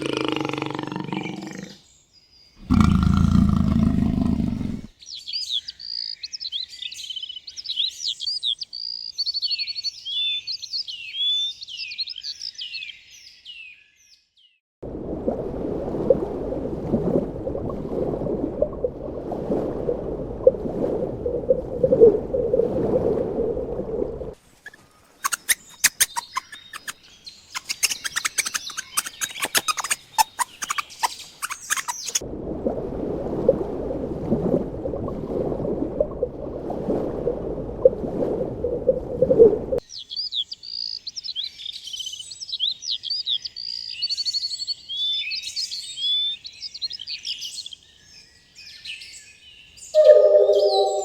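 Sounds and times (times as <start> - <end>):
low rough noisy animal sound: 0.0 - 1.8, 2.6 - 4.9
small birds chirping and trilling: 4.9 - 14.6, 24.6 - 32.2, 39.8 - 50.0.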